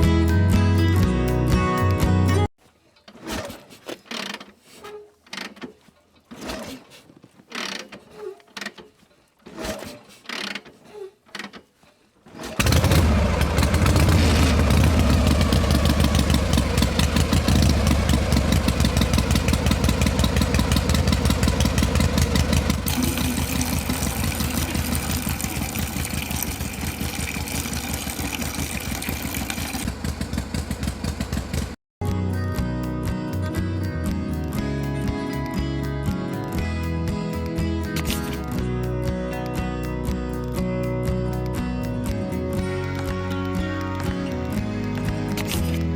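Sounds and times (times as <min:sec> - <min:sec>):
small motor running: 0:19.5 - 0:29.9.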